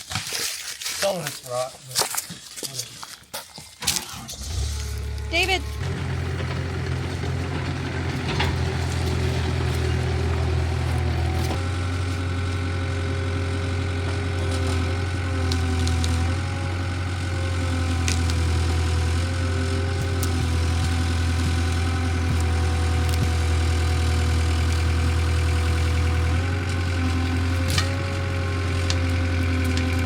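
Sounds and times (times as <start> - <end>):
engine running at low speed: 4.3 - 30.0.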